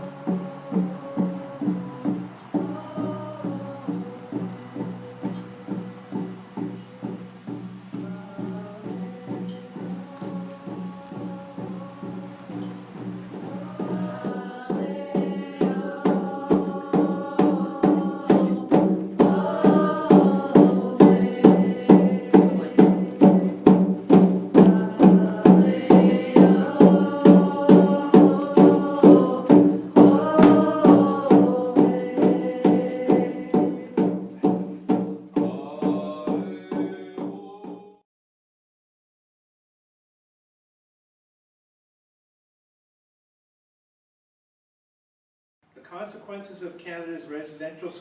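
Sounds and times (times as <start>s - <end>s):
steady drum beat: 0.0s - 38.0s
voices singing: 0.0s - 38.0s.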